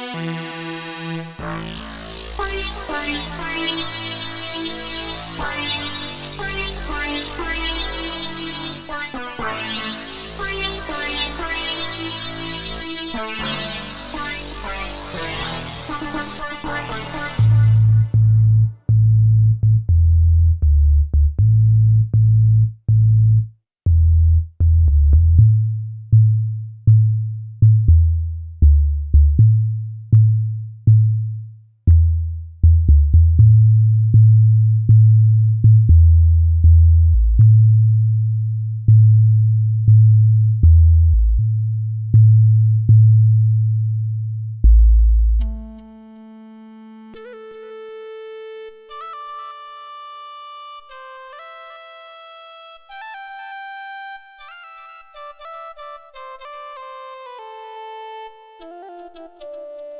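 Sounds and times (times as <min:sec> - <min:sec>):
synthesizer bass notes: 0:00.0 - 0:47.7.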